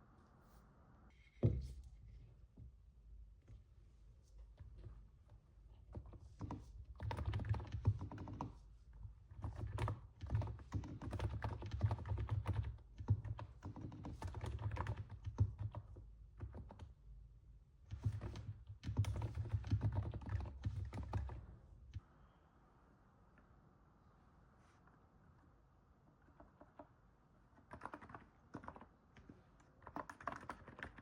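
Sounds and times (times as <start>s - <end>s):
soft keyboard keystrokes: 9.4s - 16.9s, 17.9s - 22.0s, 27.6s - 31.0s.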